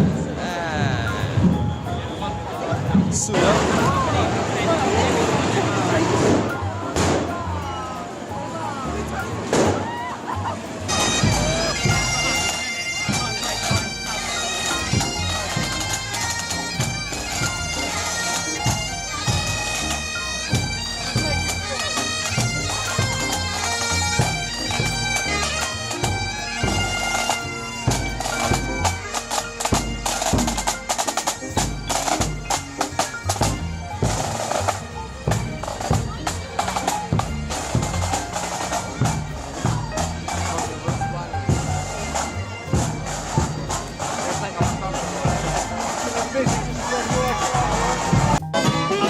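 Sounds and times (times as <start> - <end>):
bagpipes playing melody: 0.0 - 49.0
drums beating: 0.0 - 49.0.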